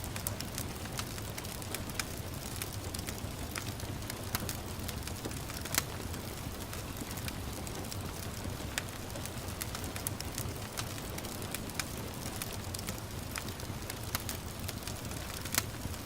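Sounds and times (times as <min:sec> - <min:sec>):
gentle rain: 0:00.0 - 0:16.0
wood fire crackling: 0:00.0 - 0:16.0.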